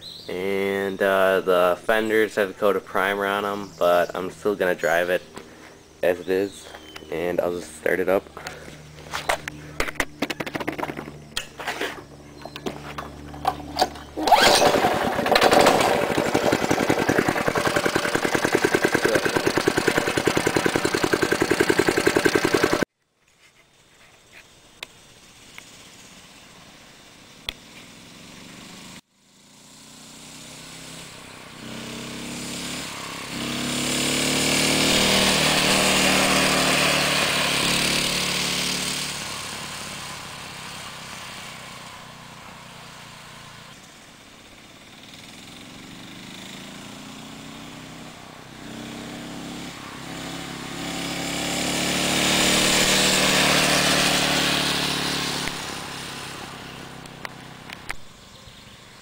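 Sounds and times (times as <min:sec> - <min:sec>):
mini bike engine running: 0:08.4 - 0:22.8, 0:27.9 - 0:43.7, 0:44.4 - 0:57.8.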